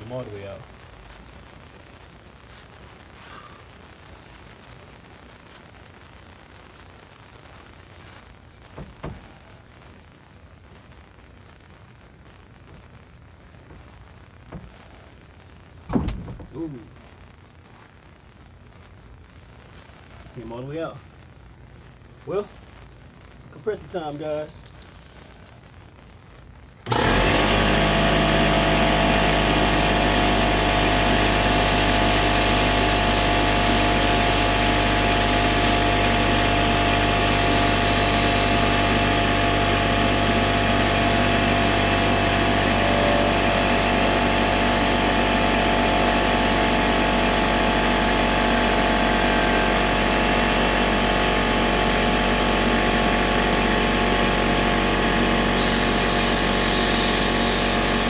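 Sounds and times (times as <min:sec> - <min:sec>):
air compressor motor humming: 0:26.9 - 0:41.0, 0:51.9 - 0:58.0
high hiss: 0:31.2 - 0:39.3, 0:55.6 - 0:58.0.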